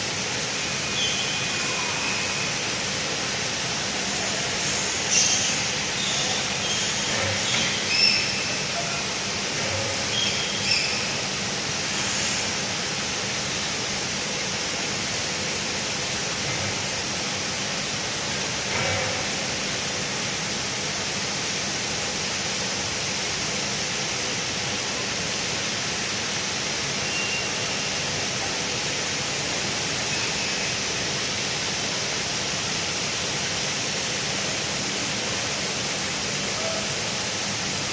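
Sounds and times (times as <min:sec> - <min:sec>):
welding arc hissing: 0:00.0 - 0:14.1.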